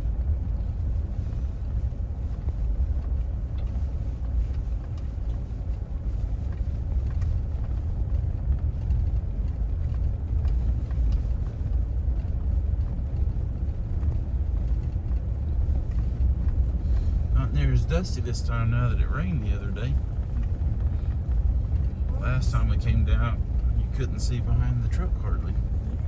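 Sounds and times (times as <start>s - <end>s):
truck road and engine rumble: 0.0s - 26.0s.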